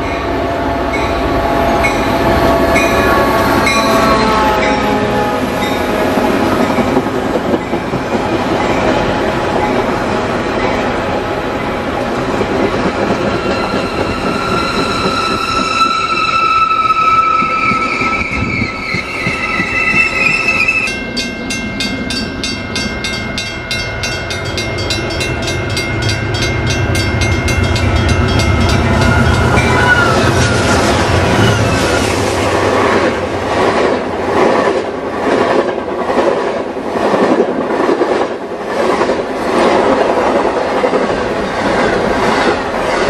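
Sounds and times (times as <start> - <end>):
train coaches rolling past: 0.0 - 43.0
wheel squeal: 13.4 - 21.0, 28.9 - 32.1.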